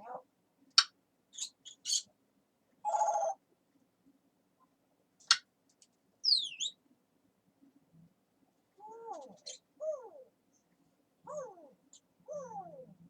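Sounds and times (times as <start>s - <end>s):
parrot calling and whistling: 6.3s - 6.8s.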